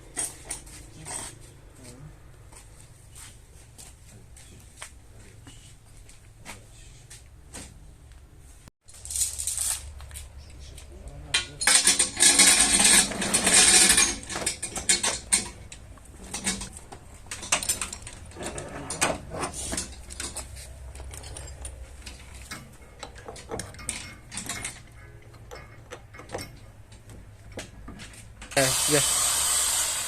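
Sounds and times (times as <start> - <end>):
metal tools clinking and knocking: 11.3 - 28.6
loud noisy burst: 28.6 - 30.0.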